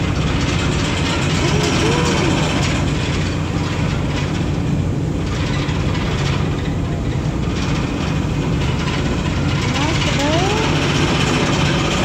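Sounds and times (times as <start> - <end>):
broad rushing noise: 0.0 - 12.0
ferry engine droning: 0.0 - 12.0.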